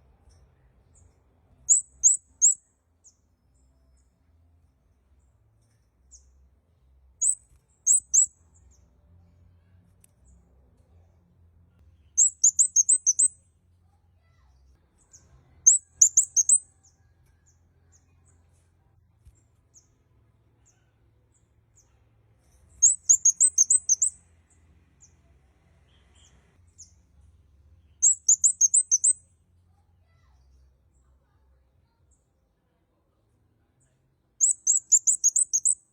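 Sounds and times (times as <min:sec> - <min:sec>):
bird singing high chirps: 0:00.8 - 0:04.1, 0:07.2 - 0:08.8, 0:12.0 - 0:13.5, 0:15.0 - 0:18.4, 0:22.7 - 0:24.3, 0:27.8 - 0:29.4, 0:34.4 - 0:35.9
faint single bird chirps: 0:00.9 - 0:03.2, 0:07.2 - 0:08.8, 0:12.0 - 0:13.5, 0:14.4 - 0:18.4, 0:22.7 - 0:24.2, 0:27.9 - 0:31.4, 0:34.4 - 0:35.9.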